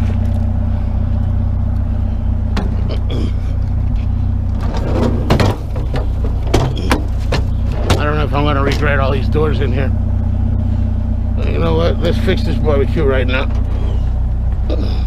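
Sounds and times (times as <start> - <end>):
vehicle engine idling: 0.0 - 15.0
sharp knocks and clanks: 2.5 - 3.1, 4.5 - 8.9.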